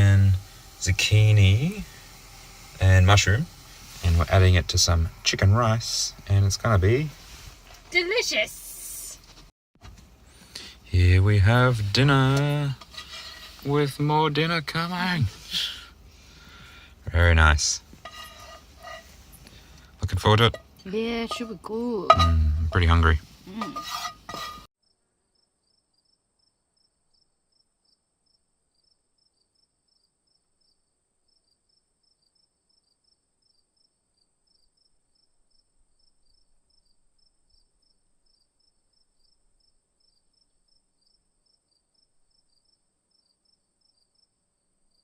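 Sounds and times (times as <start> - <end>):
person speaking: 10.5 - 15.9, 20.0 - 24.6
insects chirping: 12.8 - 19.9, 23.4 - 45.0.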